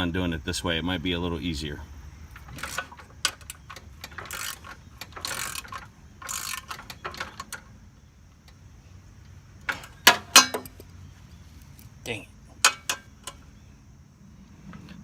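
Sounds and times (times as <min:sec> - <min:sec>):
ratcheting wrench clicking: 0:02.3 - 0:07.7.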